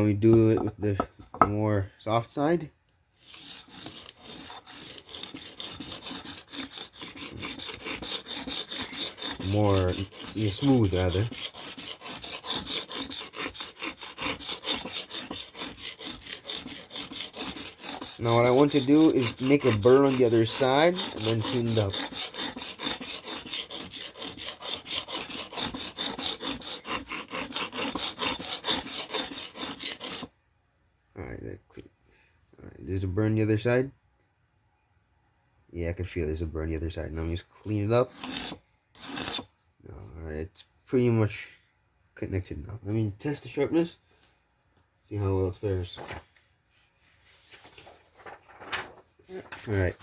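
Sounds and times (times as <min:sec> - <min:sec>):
knife scraping on whetstone: 0:03.2 - 0:30.3, 0:37.7 - 0:39.5.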